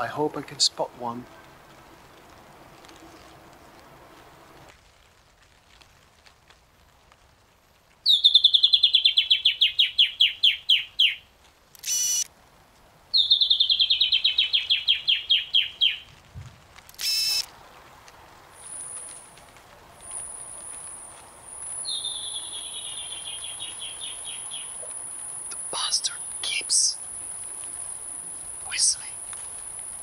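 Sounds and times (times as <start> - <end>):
bird singing a descending trill: 21.8 - 24.7.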